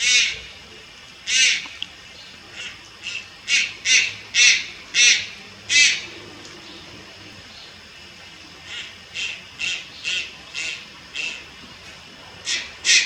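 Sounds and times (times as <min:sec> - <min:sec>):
heron squawking: 0:01.3 - 0:01.7, 0:02.5 - 0:06.1, 0:08.7 - 0:11.5, 0:12.4 - 0:13.0.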